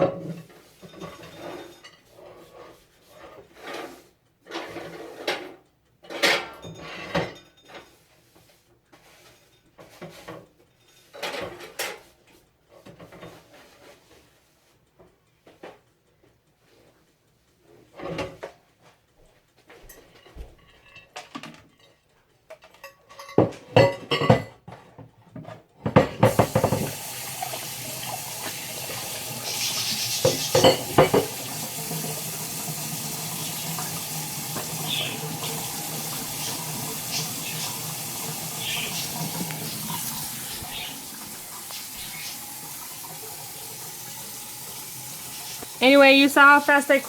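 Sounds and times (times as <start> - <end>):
dishes clattering: 6.0 - 7.9, 11.0 - 12.0, 22.6 - 24.9, 25.8 - 32.2
tap running into sink: 25.9 - 45.9.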